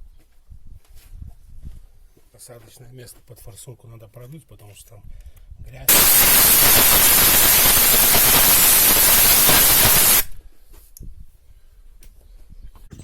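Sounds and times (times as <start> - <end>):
compressed air hissing: 5.9 - 10.4.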